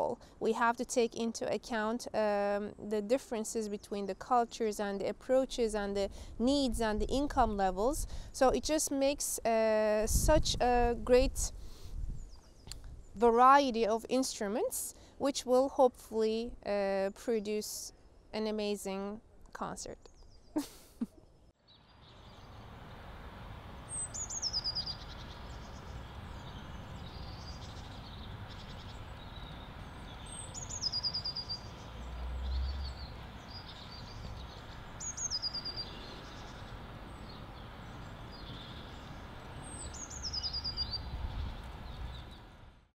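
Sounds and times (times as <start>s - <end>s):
birds chirping softly: 19.9s - 20.6s, 21.2s - 42.8s.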